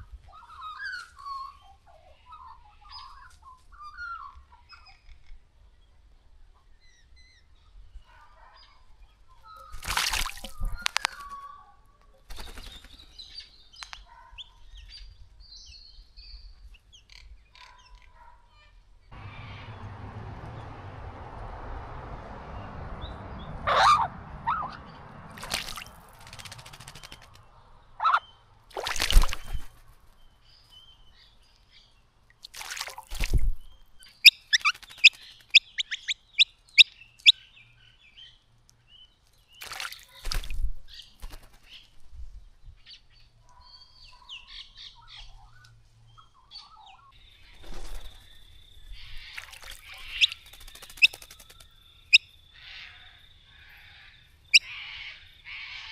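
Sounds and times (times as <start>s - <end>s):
water splashes: 9.6s - 11.3s, 25.1s - 27.3s, 28.7s - 29.8s, 32.3s - 33.9s, 39.6s - 41.0s, 48.9s - 51.5s
wing flutters: 12.2s - 13.2s, 25.3s - 27.5s, 28.7s - 30.2s, 32.9s - 35.6s, 39.6s - 42.0s, 47.4s - 51.8s
birds chirping: 19.1s - 55.9s.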